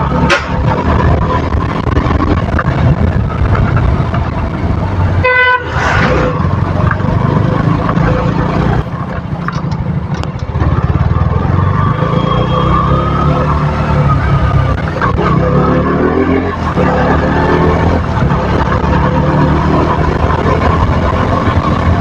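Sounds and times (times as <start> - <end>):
motorcycle engine running: 0.0 - 22.0
vehicle horn toot: 5.2 - 6.2.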